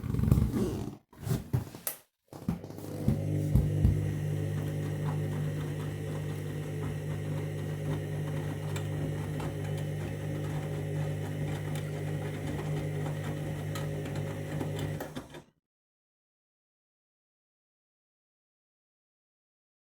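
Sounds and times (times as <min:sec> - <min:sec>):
washing machine drum tumbling: 0:02.6 - 0:15.0.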